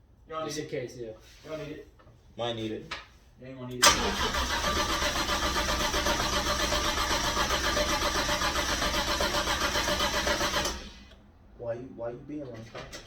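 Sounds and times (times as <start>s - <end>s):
starter motor cranking: 3.8s - 11.2s.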